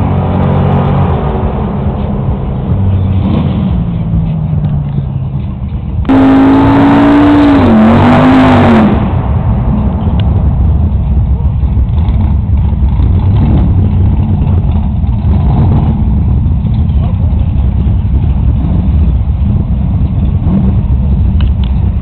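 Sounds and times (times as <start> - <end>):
car engines idling: 0.0 - 22.0.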